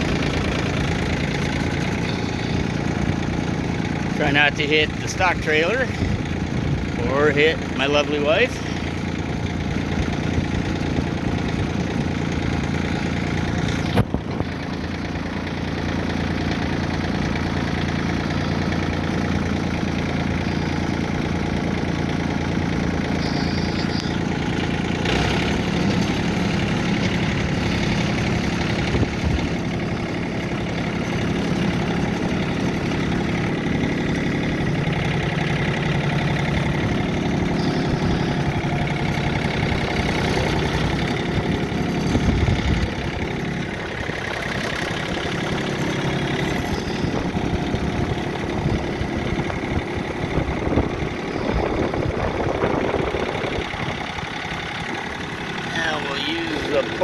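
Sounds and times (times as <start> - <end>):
machine engine running: 0.0 - 57.0.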